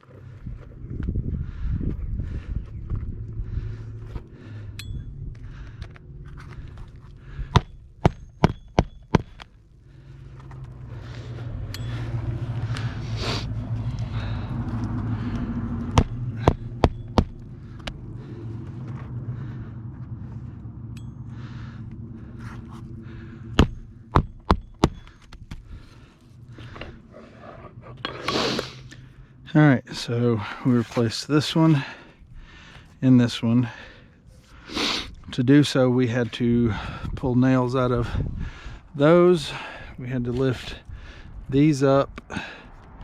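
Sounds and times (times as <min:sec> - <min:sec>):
low hum: 0:00.0 - 0:43.0
sharp knocks: 0:15.9 - 0:17.4.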